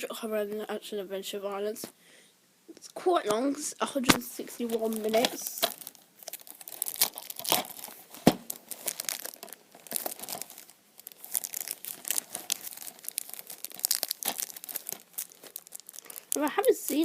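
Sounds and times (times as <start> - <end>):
plastic wrap crinkling and tearing: 4.3 - 17.0.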